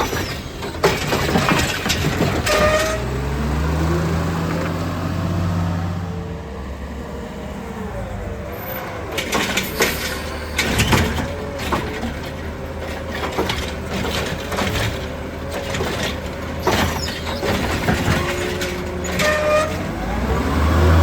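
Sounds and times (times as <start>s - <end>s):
metallic clanking and rattling: 0.0s - 3.1s, 9.1s - 20.0s
truck engine revving: 0.0s - 21.0s.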